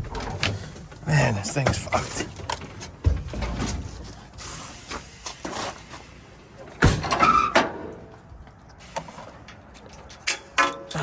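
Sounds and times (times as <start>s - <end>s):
rattle and scrape: 0.0s - 6.3s.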